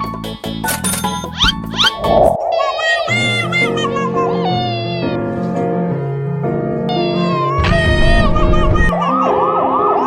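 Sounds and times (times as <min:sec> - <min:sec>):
quick rising glides: 0:01.8 - 0:03.1.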